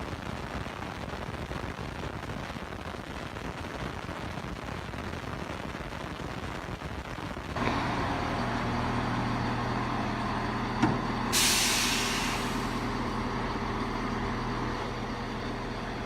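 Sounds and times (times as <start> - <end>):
diesel train engine humming: 7.6 - 16.0
air brakes hissing: 11.2 - 13.2.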